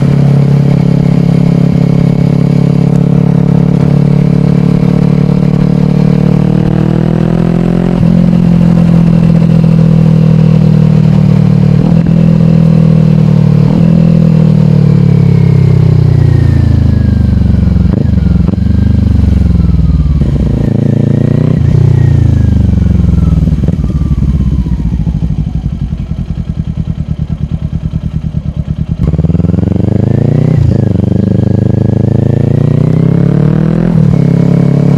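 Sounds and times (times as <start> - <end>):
engine rev blips on downshifts: 0.0 - 15.8
motorcycle engine revving: 0.0 - 34.9.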